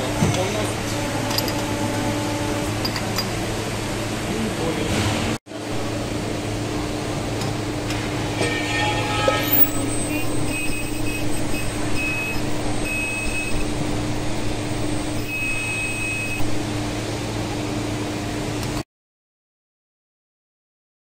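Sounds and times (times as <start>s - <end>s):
workshop machinery hum: 0.0s - 18.8s
high whistle sliding up: 9.2s - 13.8s
short high beeps: 9.4s - 13.8s, 14.8s - 16.5s.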